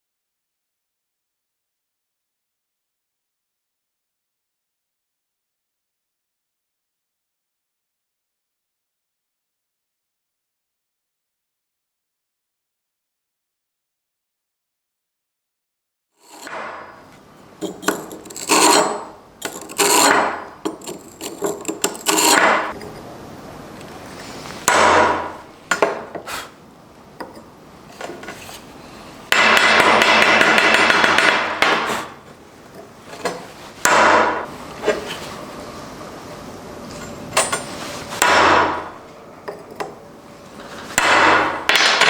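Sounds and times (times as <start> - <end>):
hammer striking metal: 16.2 - 17.0, 24.7 - 26.1, 29.3 - 32.1.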